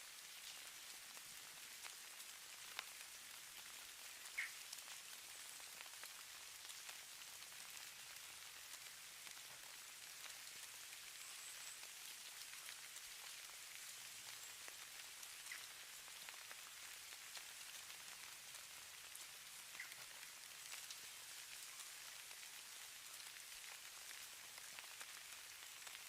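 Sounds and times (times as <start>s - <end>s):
falling snow pattering: 0.0s - 26.0s.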